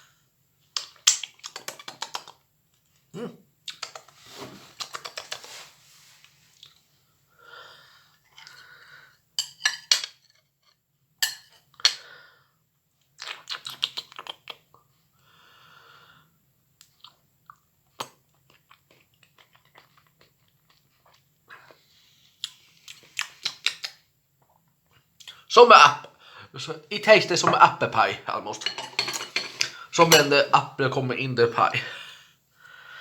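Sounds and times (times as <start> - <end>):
person chewing apple: 16.8 - 21.8
person breathing: 26.2 - 26.6, 31.8 - 33.0.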